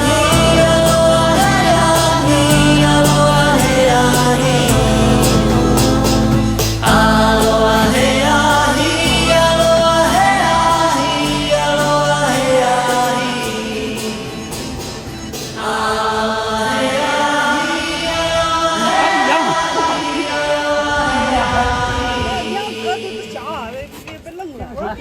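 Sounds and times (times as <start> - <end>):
low bass notes: 0.0 - 15.6
song with singing voices: 0.0 - 23.9.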